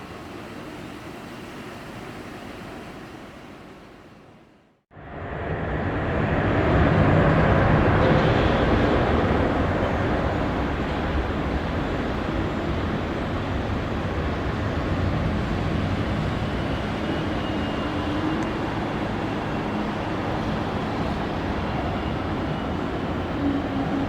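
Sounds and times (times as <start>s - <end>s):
faint engine whine: 0.0s - 24.0s
jet engines roaring: 5.0s - 24.0s.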